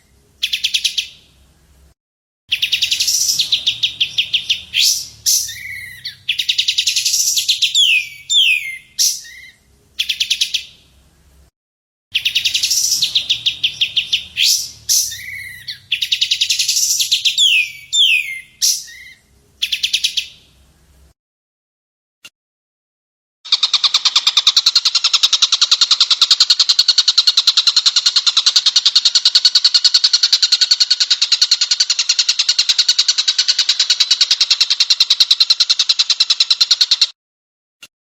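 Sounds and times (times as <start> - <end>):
songbird song: 0.0 - 1.9, 2.5 - 11.5, 12.1 - 21.1.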